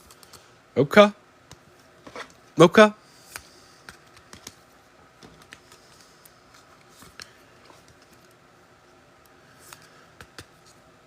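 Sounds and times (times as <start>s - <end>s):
cards clicking and snapping: 3.2s - 4.6s, 5.2s - 8.4s, 9.2s - 10.8s.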